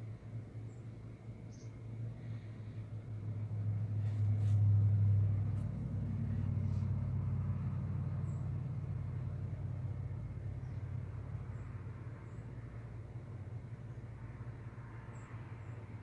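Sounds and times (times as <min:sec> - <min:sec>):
vehicle engine rumble: 0:00.0 - 0:16.0
faint high bird chirp: 0:00.6 - 0:01.8.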